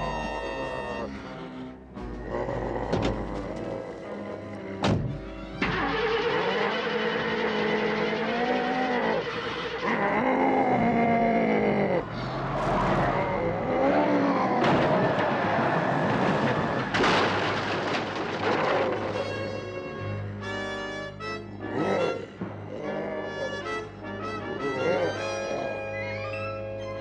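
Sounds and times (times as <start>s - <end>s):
tyres squealing and skidding: 0.0s - 1.3s, 5.6s - 20.6s.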